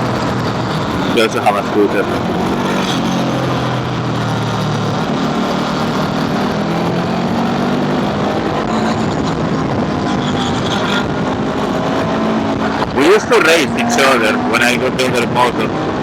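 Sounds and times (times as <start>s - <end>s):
scooter engine running: 0.0s - 16.0s
steady rushing noise: 0.0s - 16.0s.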